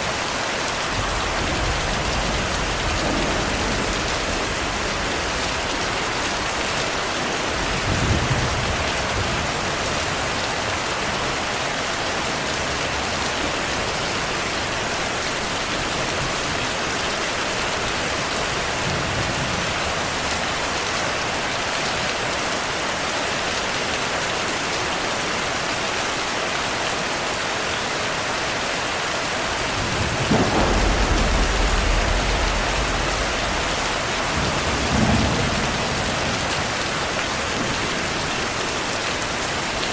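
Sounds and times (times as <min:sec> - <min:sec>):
steady rain: 0:00.0 - 0:39.9
rolling thunder: 0:00.8 - 0:10.7, 0:29.5 - 0:38.5.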